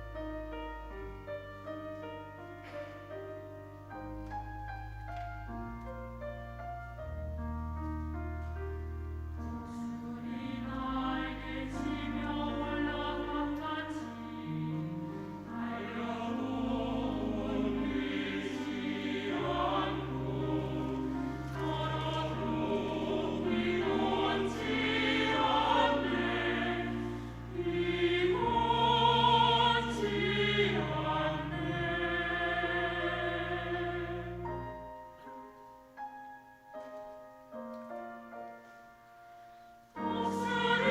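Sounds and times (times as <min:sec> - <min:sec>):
choir singing in parts: 0:09.7 - 0:34.6, 0:40.0 - 0:40.9.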